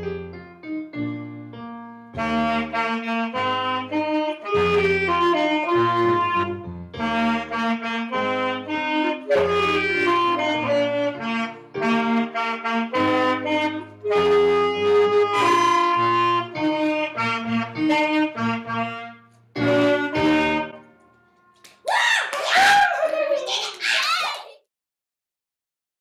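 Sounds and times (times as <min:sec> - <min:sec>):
clarinet and saxophone playing: 0:02.2 - 0:21.6.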